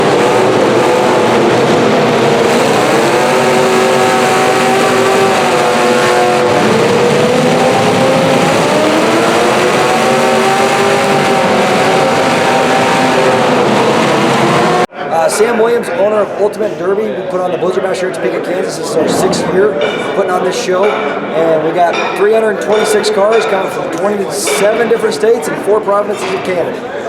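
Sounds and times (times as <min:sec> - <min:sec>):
car engines revving: 0:00.0 - 0:14.9
loud steady din: 0:00.0 - 0:14.9, 0:18.8 - 0:22.1.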